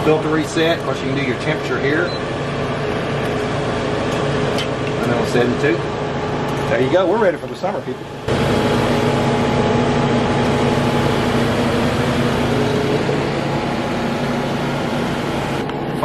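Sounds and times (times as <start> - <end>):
air conditioner running: 0.0 - 16.0.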